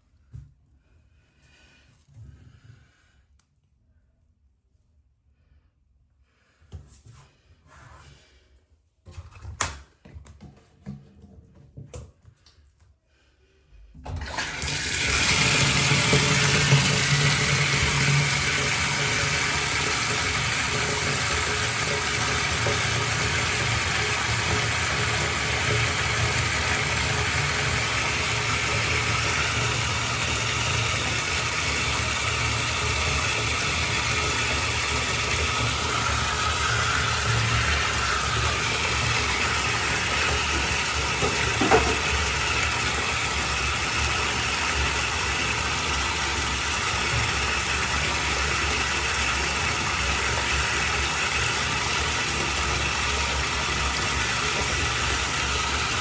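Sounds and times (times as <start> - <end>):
water gushing: 14.1 - 56.0.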